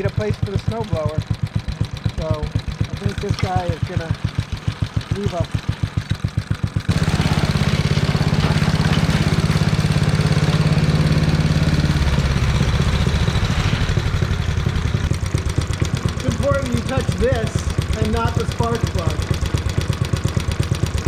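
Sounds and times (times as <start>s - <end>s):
reel mower engine: 0.0s - 21.0s.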